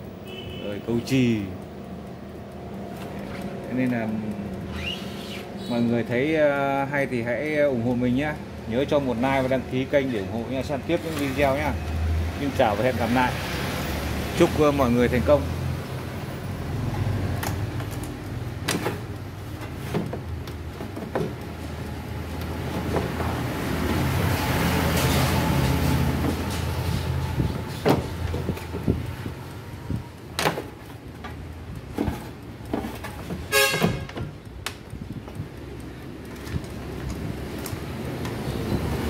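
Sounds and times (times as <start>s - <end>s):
road traffic rumbling: 0.0s - 39.0s
short horn-like tone: 33.5s - 34.1s.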